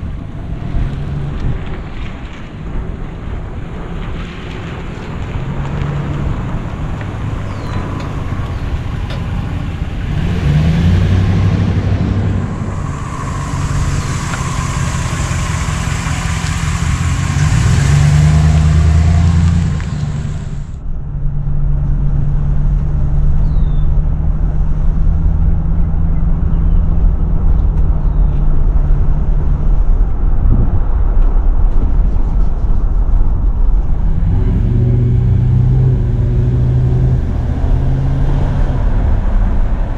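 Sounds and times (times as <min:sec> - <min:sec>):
wind and road noise: 0:00.0 - 0:39.9
truck engine running: 0:04.9 - 0:20.8.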